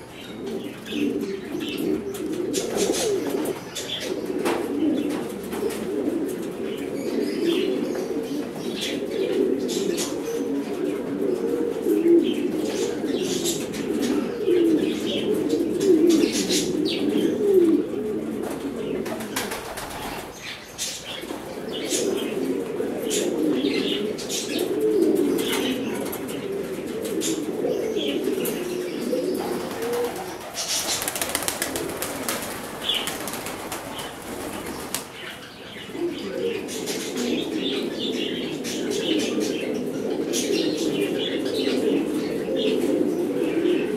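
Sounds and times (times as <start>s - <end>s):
pigeons cooing: 0.0s - 43.9s
wings flapping: 18.4s - 20.4s, 29.4s - 35.2s.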